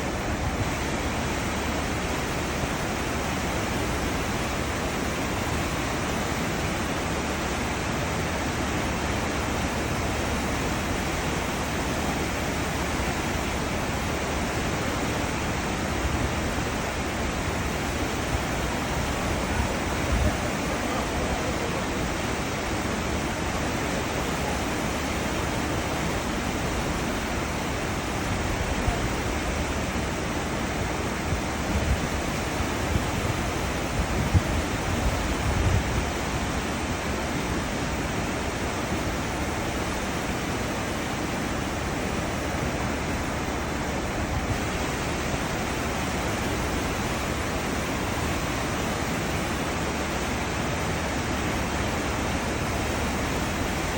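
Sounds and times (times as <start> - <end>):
ship wake churning water: 0.0 - 53.9.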